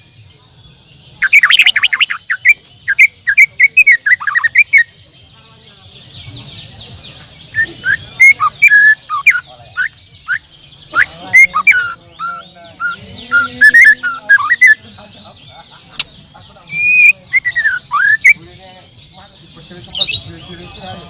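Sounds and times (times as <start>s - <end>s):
songbirds whistling and chirping: 0.0s - 21.0s
dense high twittering: 7.6s - 18.6s.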